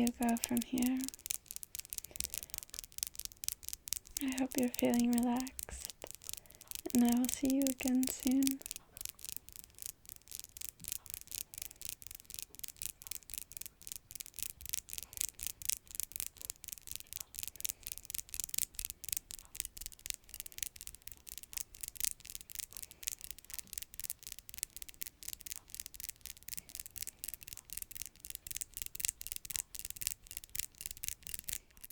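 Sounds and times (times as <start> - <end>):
fingernails scratching and tapping: 0.0 - 31.9.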